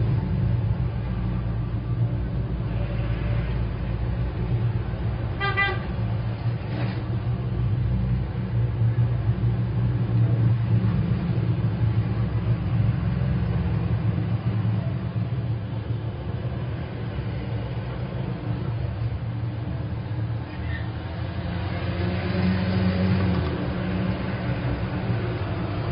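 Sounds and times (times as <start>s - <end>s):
road traffic rumble: 0.0s - 25.9s
car horn toot: 5.4s - 5.9s.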